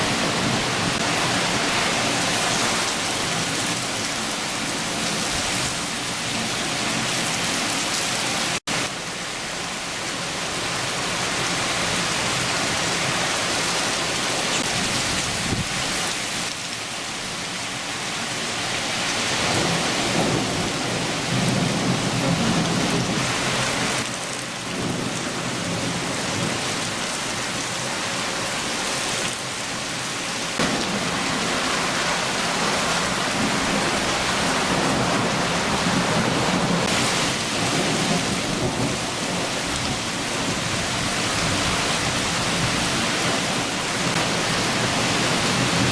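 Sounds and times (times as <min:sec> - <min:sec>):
heavy rain falling: 0:00.0 - 0:45.9
low thunder rumbling: 0:19.4 - 0:24.0, 0:30.6 - 0:45.9.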